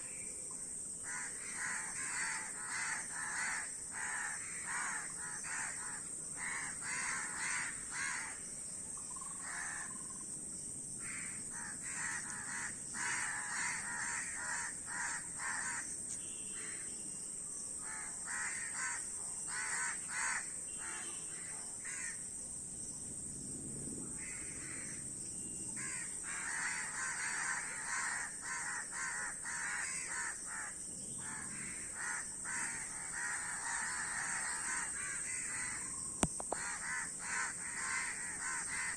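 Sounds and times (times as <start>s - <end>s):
crows cawing: 1.0s - 8.4s, 9.2s - 10.1s, 11.0s - 15.9s, 17.8s - 22.2s, 24.2s - 25.0s, 25.8s - 38.9s.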